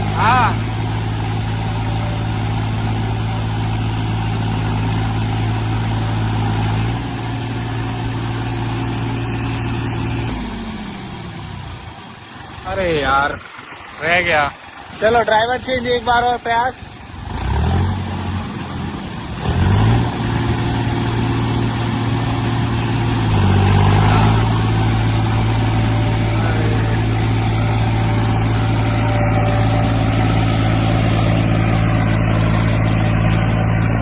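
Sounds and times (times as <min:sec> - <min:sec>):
tractor engine revving: 0:00.0 - 0:34.0.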